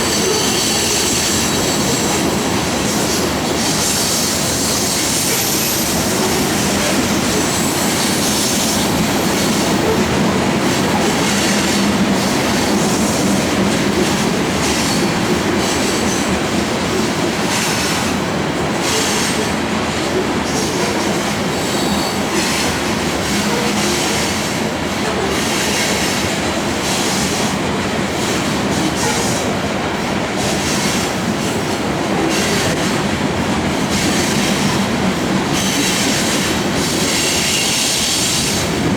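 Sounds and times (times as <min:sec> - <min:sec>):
high-pitched wheel squeal: 0:00.0 - 0:02.3
train wheels rumbling on rail: 0:00.0 - 0:38.9.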